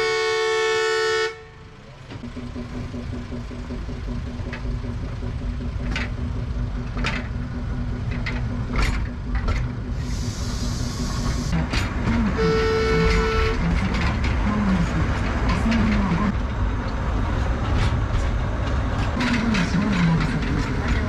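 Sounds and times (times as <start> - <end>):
small train rumbling: 0.0 - 21.0
wheels clicking on rails: 1.7 - 21.0
hiss: 10.0 - 11.5.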